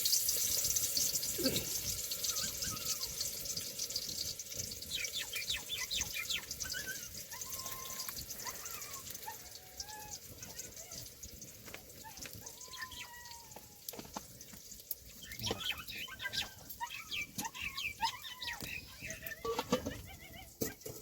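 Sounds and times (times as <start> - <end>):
rain hiss: 0.0 - 19.4
birds chirping and whistling: 1.0 - 3.4, 4.0 - 11.1, 12.0 - 13.5, 15.1 - 20.6.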